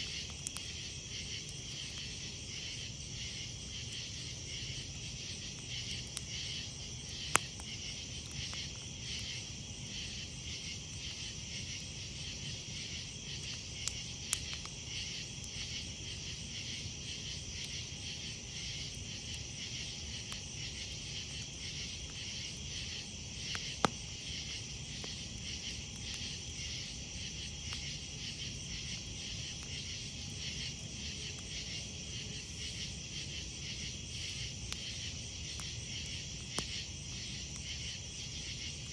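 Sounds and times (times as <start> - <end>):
burning wood popping: 0.0 - 2.7, 5.5 - 9.8, 12.7 - 17.7, 19.3 - 26.6
insects chirping: 0.0 - 38.9.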